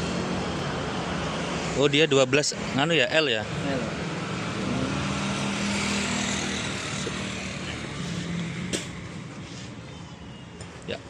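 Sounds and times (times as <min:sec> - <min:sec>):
vehicle engine passing by: 0:03.5 - 0:09.0.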